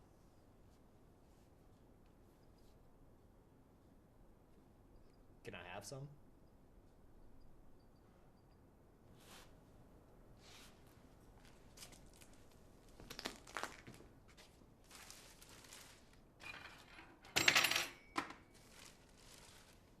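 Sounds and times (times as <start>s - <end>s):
dishes and cutlery clinking: 16.4s - 18.5s.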